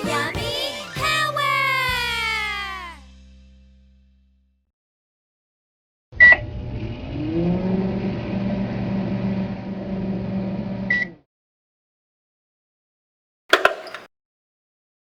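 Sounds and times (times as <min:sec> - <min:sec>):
microwave oven humming: 0:06.3 - 0:11.1.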